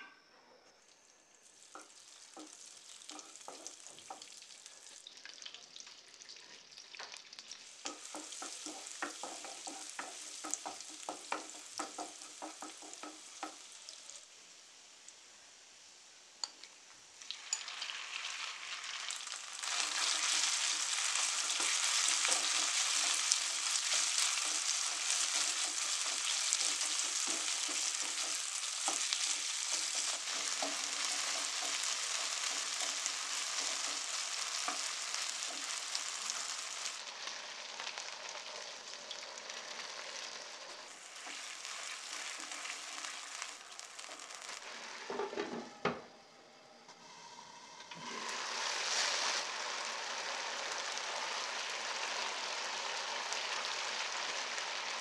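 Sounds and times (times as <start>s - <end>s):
chicken sizzling in oil: 0.9s - 45.5s, 47.1s - 55.0s
wooden spatula scraping: 19.7s - 37.0s.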